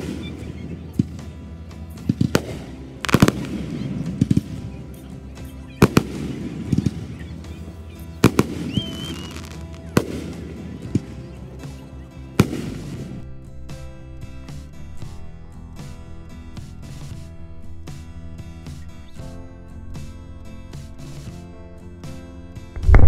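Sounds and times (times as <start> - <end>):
fireworks booming: 0.0 - 13.4.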